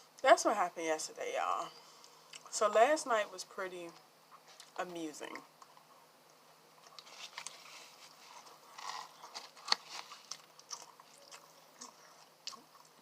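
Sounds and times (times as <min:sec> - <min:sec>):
crunch of food: 0:06.8 - 0:13.0
person chewing food: 0:06.8 - 0:13.0.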